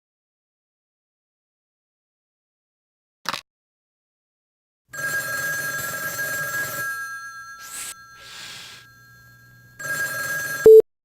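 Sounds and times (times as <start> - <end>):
telephone ringing: 4.9 - 10.9.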